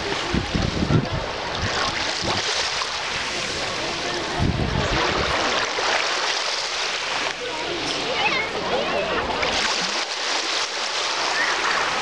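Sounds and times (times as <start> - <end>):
wind gusting on microphone: 0.0 - 6.0
sea waves washing on beach: 0.0 - 12.0.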